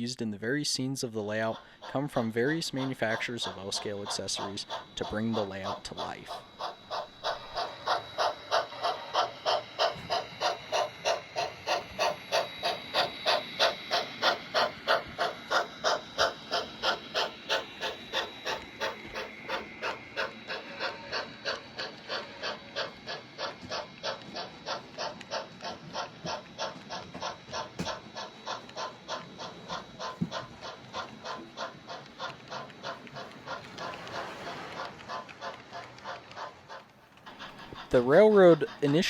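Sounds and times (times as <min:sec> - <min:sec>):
model steam locomotive chuffing: 0:00.0 - 0:39.0.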